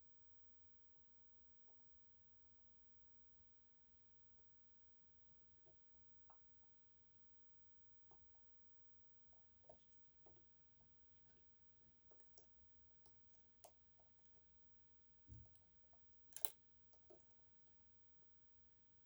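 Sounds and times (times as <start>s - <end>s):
faint lock picking clicks: 15.3s - 17.4s.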